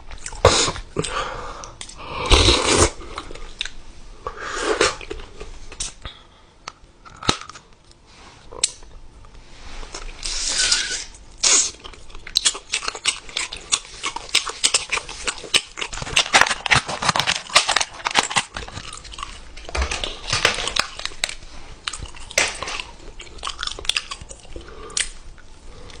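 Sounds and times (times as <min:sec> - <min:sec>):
wet chewing: 0:11.4 - 0:26.0.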